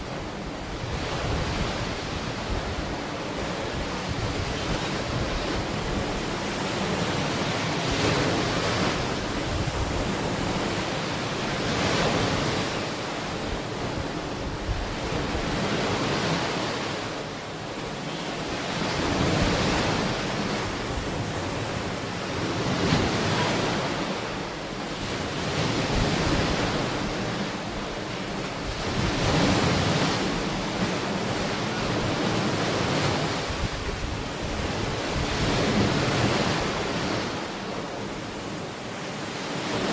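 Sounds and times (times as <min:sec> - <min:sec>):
wind on microphone: 0:00.0 - 0:17.0, 0:25.0 - 0:38.7
ocean waves breaking on shore: 0:00.0 - 0:39.9.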